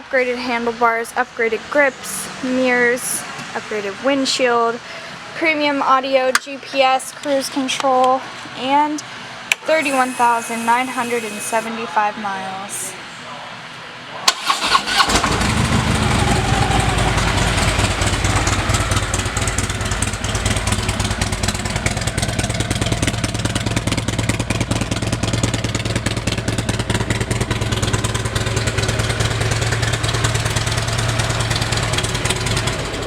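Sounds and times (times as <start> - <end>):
motorcycle engine idling: 14.6 - 33.0.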